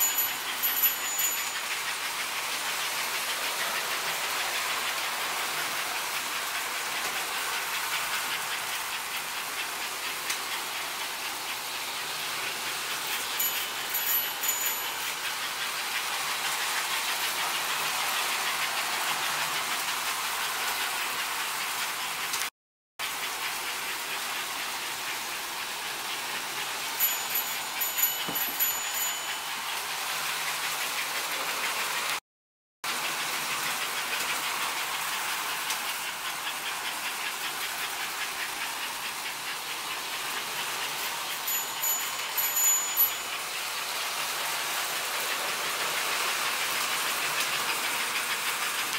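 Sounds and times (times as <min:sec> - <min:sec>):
short high ringing tones: 0:00.0 - 0:01.7, 0:13.4 - 0:15.2, 0:27.0 - 0:29.6, 0:41.5 - 0:43.4
model train wheels clattering: 0:00.0 - 0:32.2, 0:32.9 - 0:48.9.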